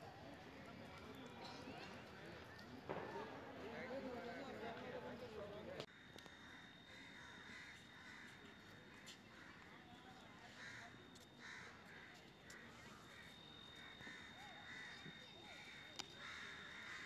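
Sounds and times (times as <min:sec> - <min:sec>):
faint high whine: 0:05.9 - 0:17.0.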